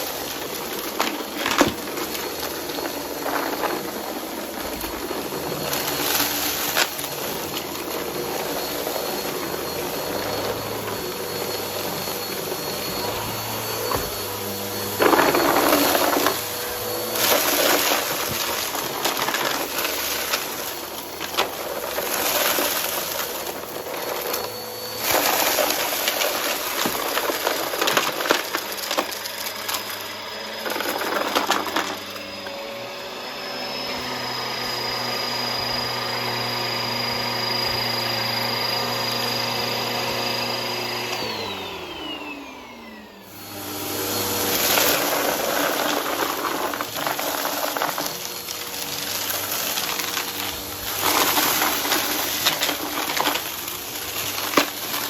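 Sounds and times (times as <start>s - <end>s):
debris crunching and rattling: 0.0s - 32.6s, 43.6s - 55.0s
motor winding down whine: 0.0s - 55.0s
vacuum cleaner running: 0.0s - 55.0s.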